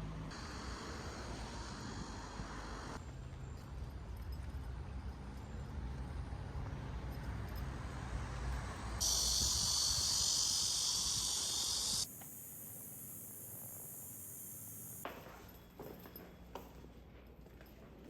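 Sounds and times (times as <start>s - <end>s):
high-pitched insect chorus: 9.0s - 15.0s.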